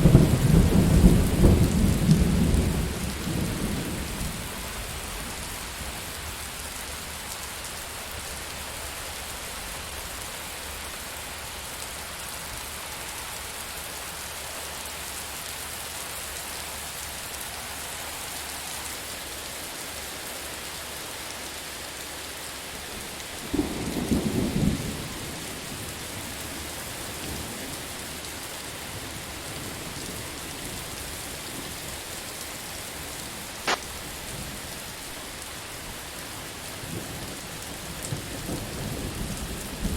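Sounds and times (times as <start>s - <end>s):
steady rain: 0.0s - 39.9s
sharp click: 33.7s - 33.9s.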